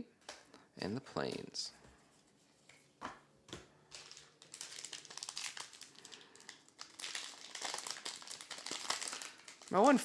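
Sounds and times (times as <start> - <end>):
foil wrapper crinkling: 3.9 - 10.0.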